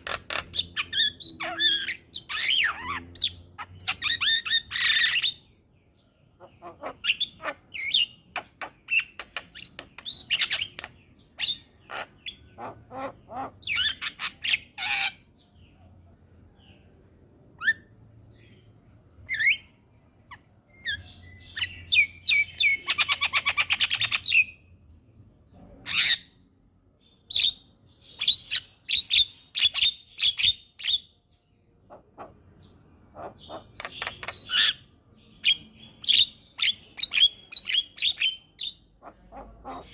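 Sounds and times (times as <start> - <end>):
myna bird calling: 0.0 - 5.6, 6.2 - 15.8, 31.8 - 39.9.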